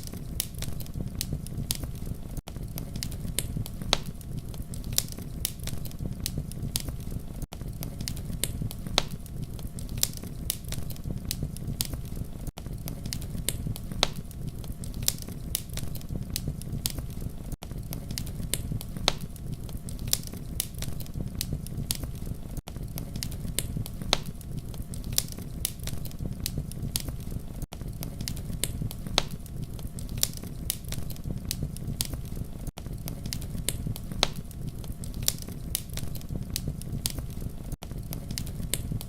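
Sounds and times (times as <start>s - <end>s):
campfire flames rumbling: 0.0s - 39.0s
fire pops and snaps: 0.0s - 39.0s.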